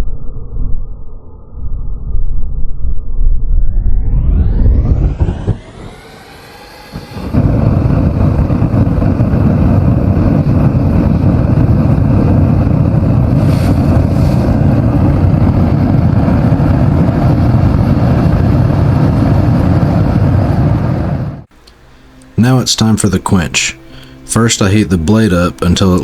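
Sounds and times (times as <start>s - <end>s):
shop machinery low roar: 4.4s - 19.8s.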